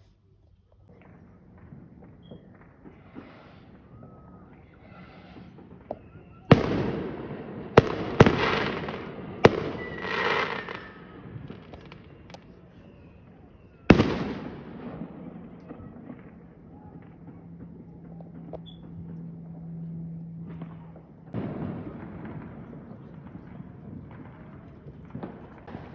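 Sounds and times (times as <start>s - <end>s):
fireworks bangs: 0.8s - 25.9s.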